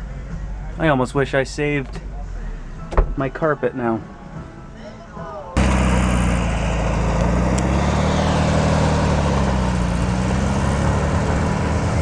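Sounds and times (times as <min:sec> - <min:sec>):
car engine running steadily: 0:05.6 - 0:12.0.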